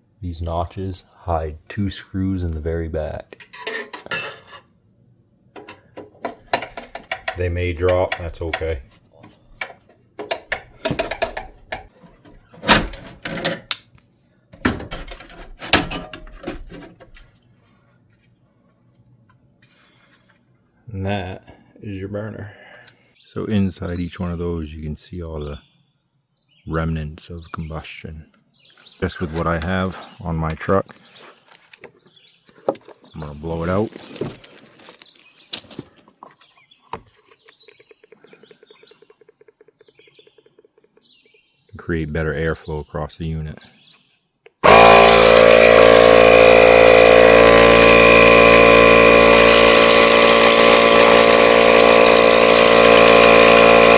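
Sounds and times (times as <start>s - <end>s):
sharp knocks and clicks: 5.6s - 8.8s, 9.6s - 13.8s
birds chirping faintly: 17.2s - 44.6s.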